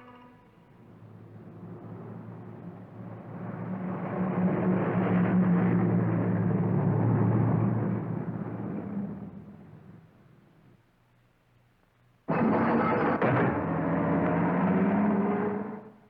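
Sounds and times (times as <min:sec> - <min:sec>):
car engine passing: 0:00.8 - 0:10.0, 0:12.4 - 0:16.0.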